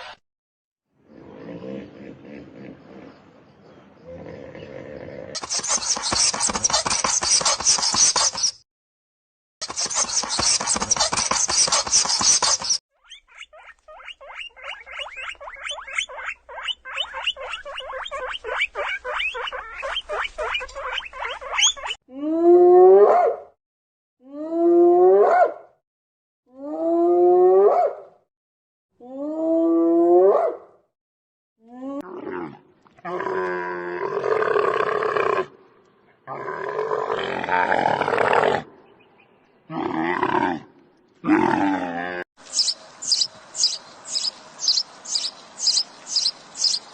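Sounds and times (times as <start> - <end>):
rough noisy animal calls: 9.6 - 22.0.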